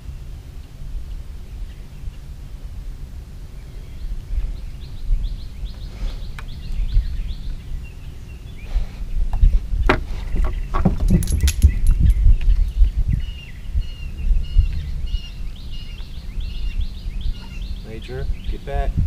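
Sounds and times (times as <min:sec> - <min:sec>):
low outdoor rumble: 0:00.0 - 0:19.0
bird trilling chirps: 0:10.2 - 0:18.9.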